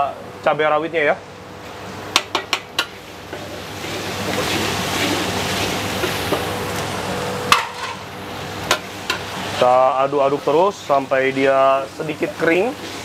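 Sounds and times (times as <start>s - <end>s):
food sizzling in hot oil: 1.7s - 13.0s
metal ladle clanking on wok: 7.5s - 8.0s.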